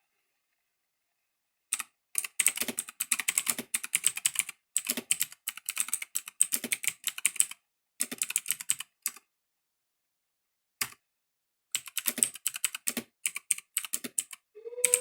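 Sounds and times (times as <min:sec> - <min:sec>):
mechanical keyboard clicks: 0:01.8 - 0:09.2, 0:11.8 - 0:14.4.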